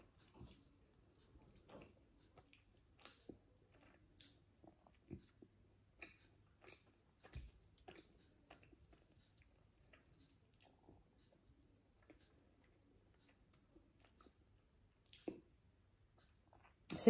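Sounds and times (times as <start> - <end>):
chewing with mouth closed: 0.0 - 16.9.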